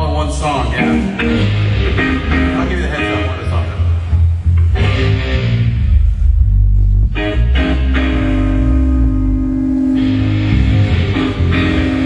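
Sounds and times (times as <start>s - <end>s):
bass notes: 0.0s - 12.0s
electric guitar chords ringing: 0.7s - 12.0s.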